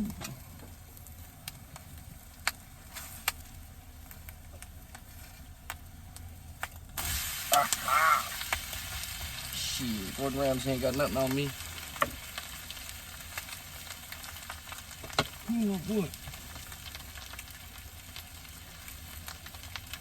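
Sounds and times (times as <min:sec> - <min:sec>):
egg sizzling in hot pan: 0:00.1 - 0:20.0.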